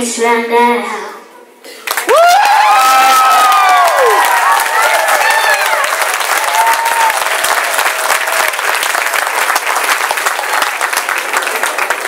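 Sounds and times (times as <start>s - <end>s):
audience applauding: 1.8s - 12.0s
faint shouts and whoops: 2.1s - 7.2s.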